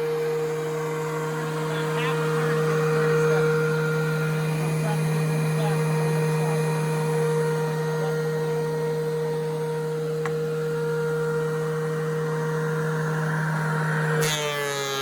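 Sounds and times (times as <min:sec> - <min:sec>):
thickness planer motor hum: 0:00.0 - 0:15.0.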